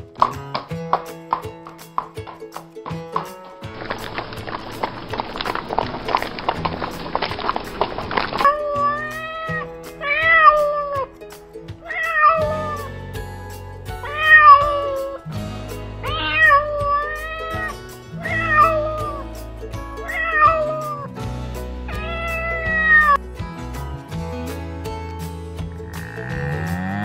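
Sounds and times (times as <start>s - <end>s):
background music: 0.0s - 27.0s
cat meowing: 8.4s - 11.1s, 11.8s - 12.9s, 14.0s - 15.2s, 16.0s - 19.2s, 20.0s - 21.0s, 22.0s - 23.2s.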